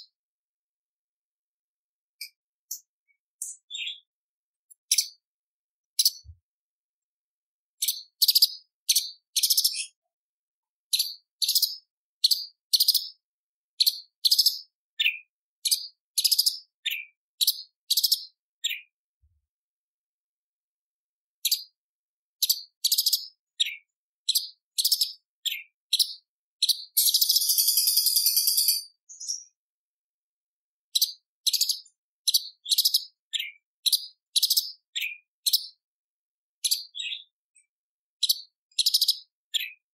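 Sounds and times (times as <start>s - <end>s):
bird singing high sharp notes: 26.9s - 29.5s
bird rattling trill: 27.0s - 28.9s.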